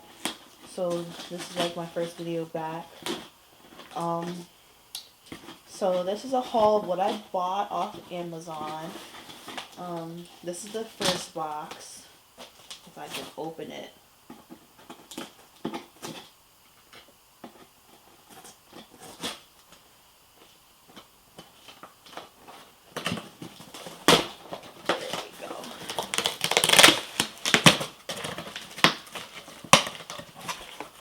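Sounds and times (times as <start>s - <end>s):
packaging crinkling and ripping: 20.9s - 31.0s.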